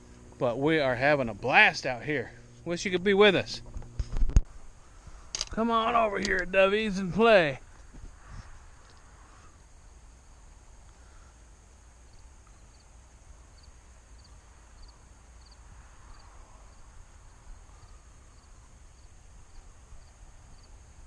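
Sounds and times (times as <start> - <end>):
insect chirping: 0.0 - 21.0
wind rumble on microphone: 3.6 - 4.6, 7.6 - 9.2.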